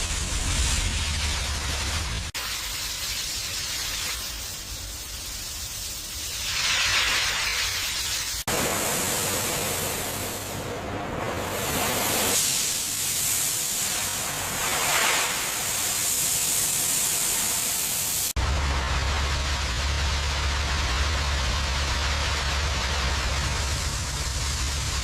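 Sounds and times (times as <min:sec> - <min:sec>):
high-pressure spray hissing: 0:00.0 - 0:10.7, 0:11.4 - 0:25.0
low steady hum: 0:18.4 - 0:25.0.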